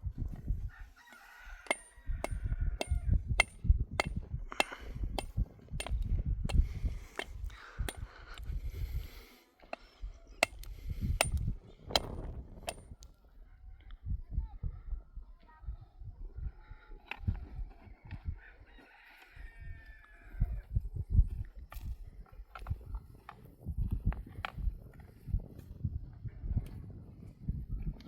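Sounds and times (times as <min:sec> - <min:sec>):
hand tool striking hard surface: 0:01.6 - 0:08.1, 0:10.4 - 0:12.9.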